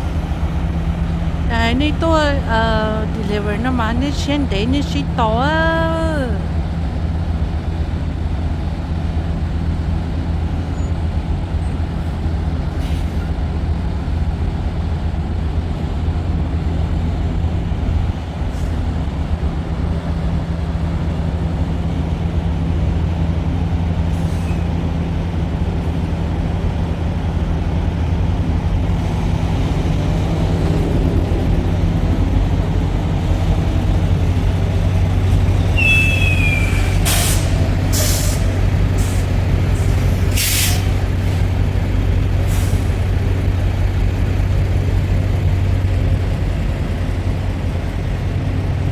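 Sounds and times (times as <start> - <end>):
diesel truck engine running: 0.0 - 48.9
high falling squeal: 35.6 - 37.7.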